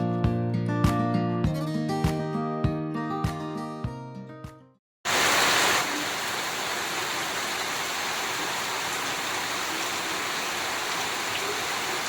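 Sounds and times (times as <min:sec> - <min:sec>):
steady rain falling: 0:05.1 - 0:12.0.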